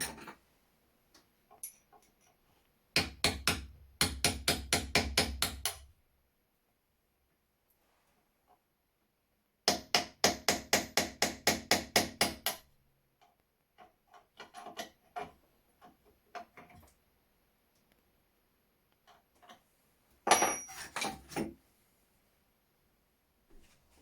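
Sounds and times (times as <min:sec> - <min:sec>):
hammer tapping on a punch: 0:03.0 - 0:05.8.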